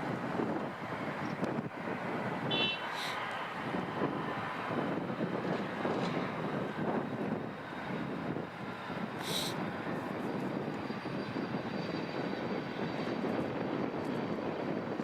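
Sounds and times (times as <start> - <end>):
jet engines roaring: 0.0 - 15.0
wind buffeting microphone: 0.0 - 15.0.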